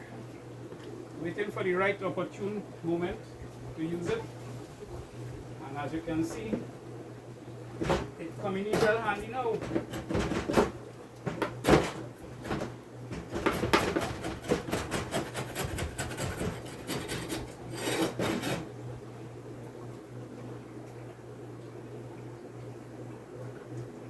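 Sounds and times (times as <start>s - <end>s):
wooden knocks: 9.6s - 17.3s
wooden parts scraping together: 11.3s - 18.7s.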